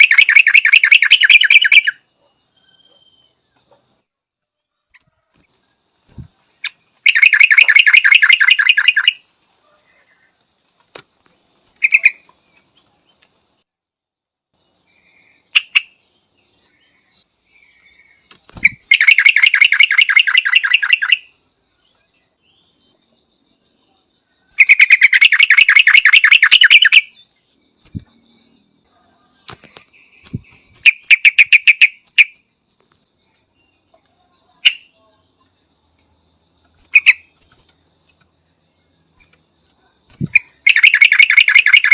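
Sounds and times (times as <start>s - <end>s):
bird chattering calls: 0.0s - 2.0s, 6.6s - 9.2s, 11.8s - 12.3s, 18.6s - 21.2s, 24.6s - 27.2s, 40.2s - 41.9s.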